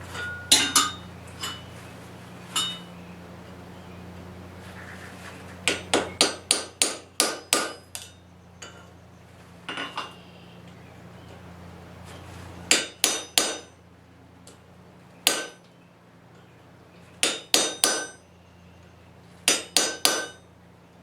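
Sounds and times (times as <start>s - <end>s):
hammer ringing on metal: 0.0s - 1.7s, 2.5s - 3.0s, 5.7s - 8.9s, 12.7s - 13.8s, 15.3s - 15.6s, 17.2s - 18.3s, 19.5s - 20.5s
low hum: 0.0s - 6.6s.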